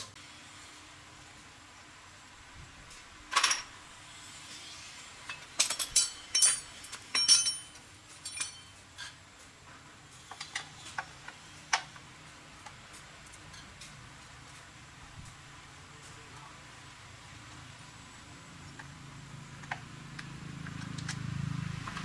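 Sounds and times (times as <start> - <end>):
metal parts and tools clinking: 3.3 - 3.8, 5.2 - 9.2, 10.2 - 12.0.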